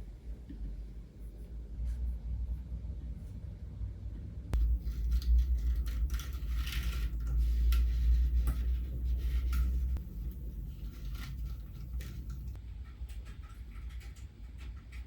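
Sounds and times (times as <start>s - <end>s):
steady low hum: 0.0s - 15.0s
light clicks taps and rustling: 4.6s - 15.0s.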